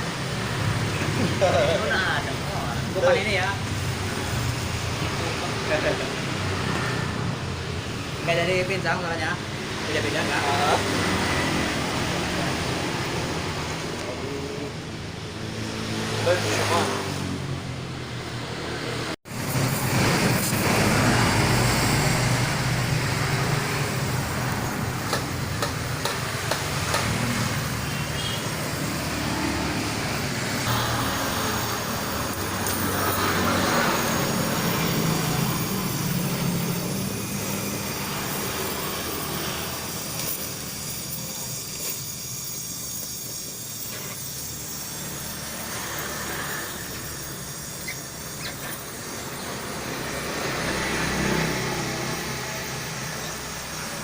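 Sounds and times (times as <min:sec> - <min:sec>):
car engine exhaust rumble: 0:39.8 - 0:45.0.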